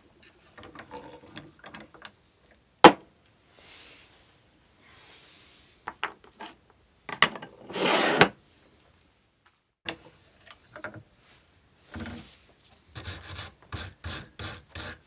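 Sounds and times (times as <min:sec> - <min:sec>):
short scrape: 0:07.7 - 0:08.4.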